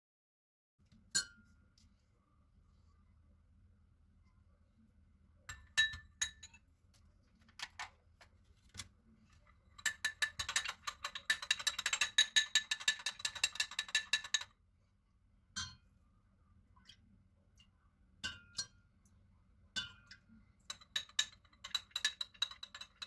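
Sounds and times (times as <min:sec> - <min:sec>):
utensil clinking against glass: 0:09.8 - 0:14.5, 0:20.7 - 0:23.0.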